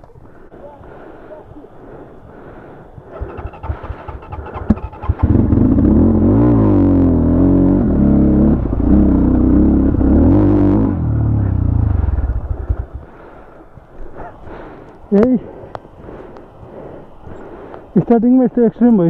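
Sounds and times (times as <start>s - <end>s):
motorcycle engine revving: 3.1s - 13.1s.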